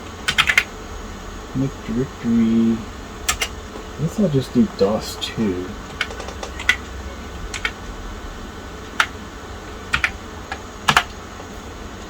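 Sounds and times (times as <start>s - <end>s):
keyboard keystrokes: 0.3s - 0.7s, 3.3s - 3.6s, 5.9s - 6.9s, 7.5s - 7.8s, 8.9s - 9.2s, 9.9s - 11.2s.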